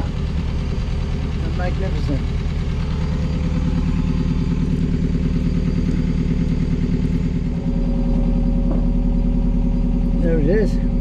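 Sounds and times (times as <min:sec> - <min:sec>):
boat diesel engine running: 0:00.0 - 0:11.0.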